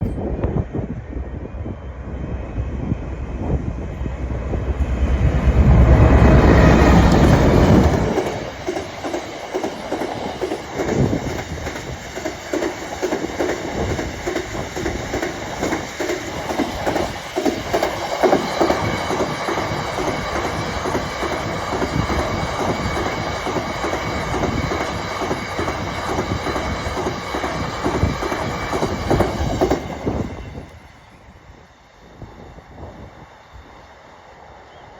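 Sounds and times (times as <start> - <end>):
diesel locomotive passing: 0.0 - 34.9
wheels clacking over rail joints: 4.7 - 30.9.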